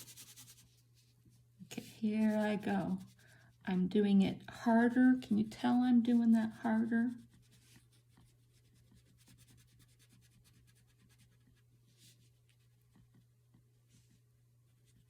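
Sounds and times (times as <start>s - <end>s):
crayon scratching on paper: 0.0s - 0.7s, 1.8s - 3.8s, 4.6s - 12.1s.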